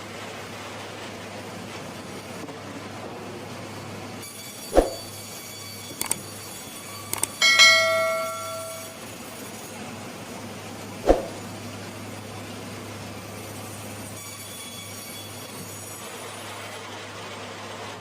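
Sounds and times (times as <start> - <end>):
loud metallic clang: 7.2 - 9.0.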